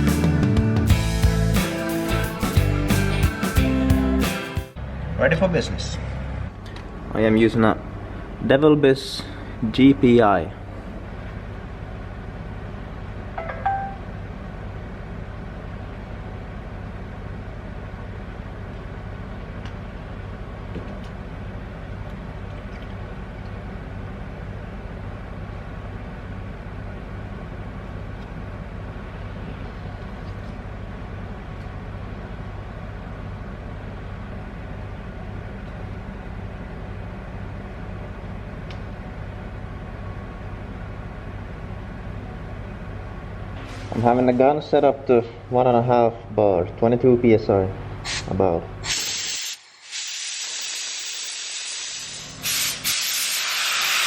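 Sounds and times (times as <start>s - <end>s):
metallic ping: 13.4s - 14.2s.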